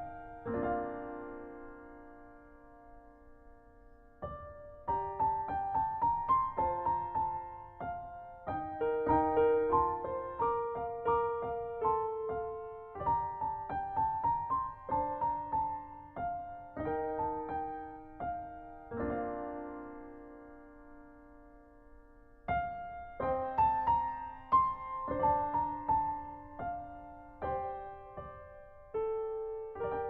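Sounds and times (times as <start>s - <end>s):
gentle solo piano: 0.0s - 30.0s.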